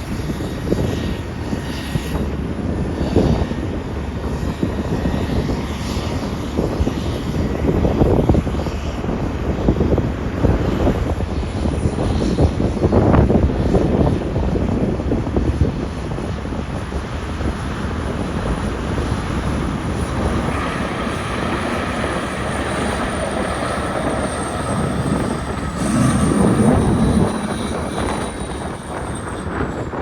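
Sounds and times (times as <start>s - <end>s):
vehicle engine: 18.2s - 30.0s
high whine falling in pitch: 20.0s - 30.0s.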